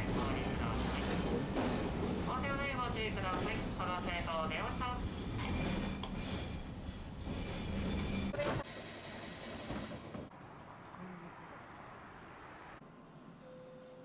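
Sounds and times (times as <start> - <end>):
streetcar rumbling: 0.0 - 13.6
high wheel squeal: 2.5 - 10.0.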